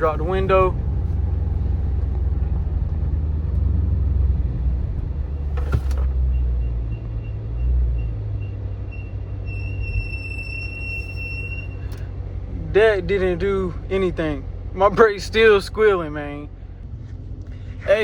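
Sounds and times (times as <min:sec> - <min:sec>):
car engine and road rumble: 0:00.0 - 0:18.0
high brake squeal: 0:06.6 - 0:12.0.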